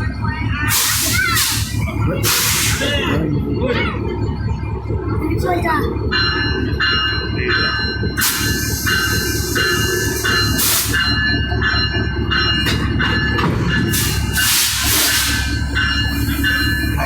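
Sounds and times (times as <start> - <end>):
locomotive engine idling: 0.0 - 17.0
air hissing: 0.7 - 3.0, 8.2 - 11.0, 13.9 - 16.4.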